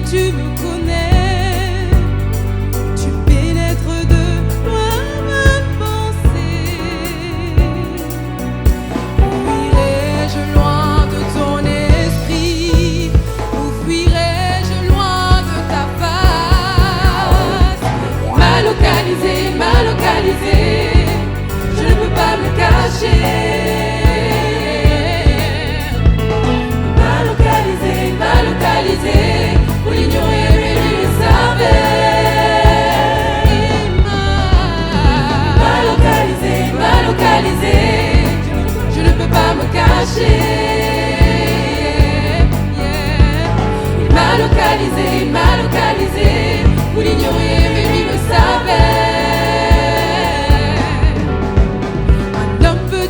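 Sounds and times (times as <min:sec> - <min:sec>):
band playing: 0:00.0 - 0:53.0
choir singing gospel: 0:00.0 - 0:53.0
steady drumbeat: 0:05.4 - 0:53.0.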